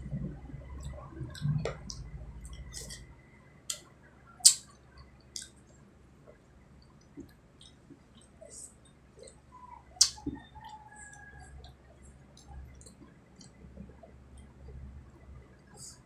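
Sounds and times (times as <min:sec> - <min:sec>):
chewing: 0:00.8 - 0:03.1, 0:06.3 - 0:09.4
wet mouth clicks and lip smacks: 0:10.0 - 0:10.3.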